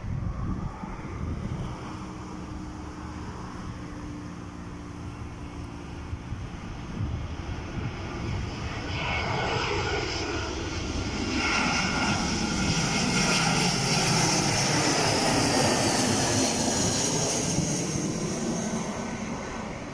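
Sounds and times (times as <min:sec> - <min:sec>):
jet airliner engine noise: 0:00.0 - 0:19.9
jet engine whine shifting pitch: 0:04.8 - 0:19.9.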